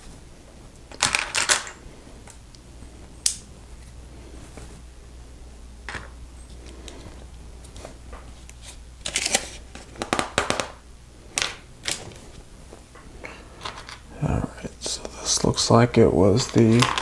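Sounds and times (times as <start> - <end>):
low steady hum: 0.0 - 17.0
plastic bricks clicking and rattling: 16.4 - 17.0.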